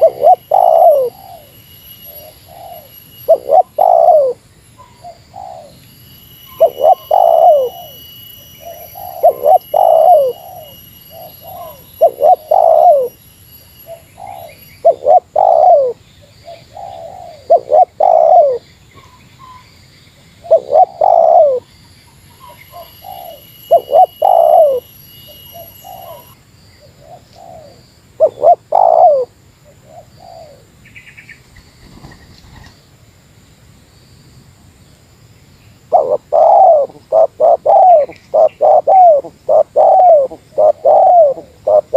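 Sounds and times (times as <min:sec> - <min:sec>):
dove cooing: 0:00.0 - 0:05.8, 0:06.5 - 0:08.0, 0:08.6 - 0:13.1, 0:13.9 - 0:18.6, 0:20.4 - 0:21.7, 0:22.4 - 0:24.9, 0:25.5 - 0:26.4, 0:27.0 - 0:30.6, 0:35.9 - 0:41.9.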